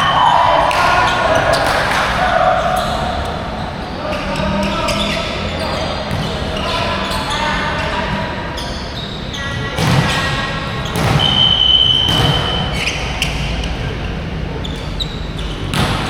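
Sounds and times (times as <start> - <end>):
whistle blast: 11.1 - 12.9.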